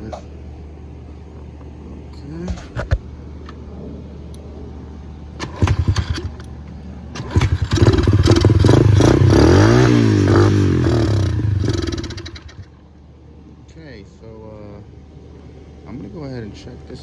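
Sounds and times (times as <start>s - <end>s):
pit bike engine revving: 5.4s - 12.8s.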